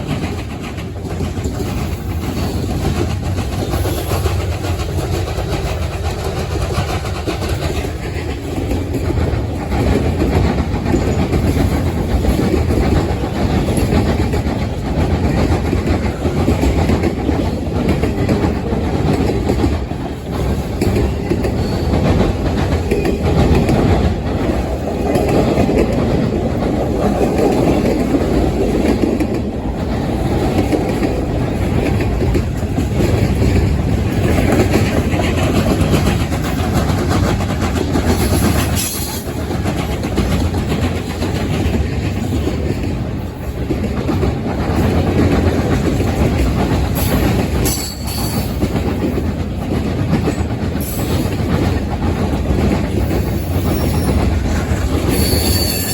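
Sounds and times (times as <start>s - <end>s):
clickety-clack over rail joints: 0.0s - 55.9s
train wheels rumbling on rails: 0.0s - 55.9s
high-pitched wheel squeals: 55.1s - 55.9s.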